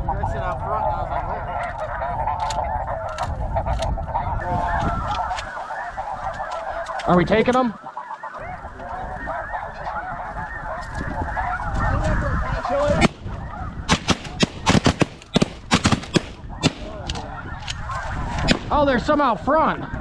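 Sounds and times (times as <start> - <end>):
geese honking: 0.0 - 20.0
sharp cracks: 13.9 - 17.3.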